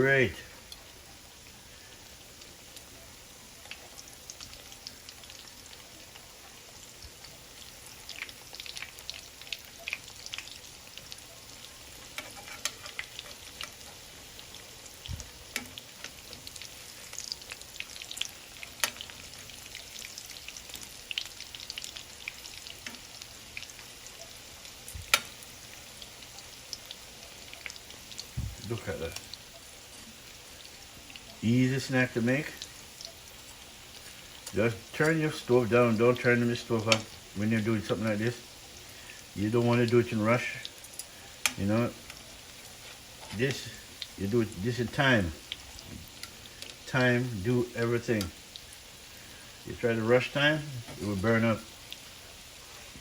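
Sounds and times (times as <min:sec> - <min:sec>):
frying in oil sizzling: 0:00.0 - 0:53.0.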